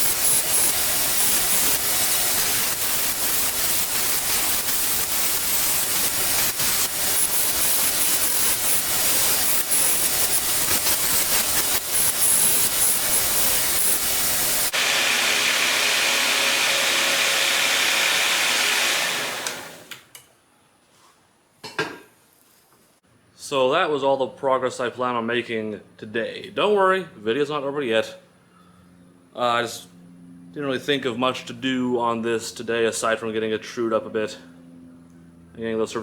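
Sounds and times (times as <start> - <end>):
loud steady rushing hiss: 0.0 - 19.9.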